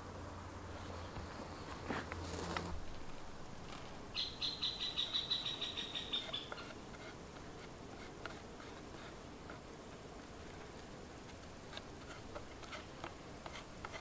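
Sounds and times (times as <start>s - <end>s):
bird trilling: 4.1s - 6.6s.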